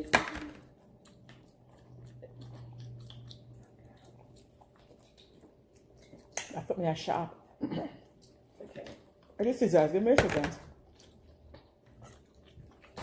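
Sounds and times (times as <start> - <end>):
low steady hum: 0.0 - 13.0
chewing: 0.7 - 6.7, 7.5 - 9.6, 10.7 - 13.0.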